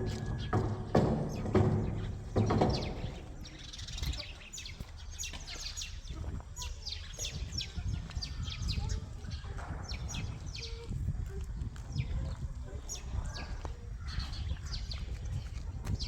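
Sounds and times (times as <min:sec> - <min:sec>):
loud knock: 0:00.0 - 0:03.5
small birds chirping: 0:00.0 - 0:16.0.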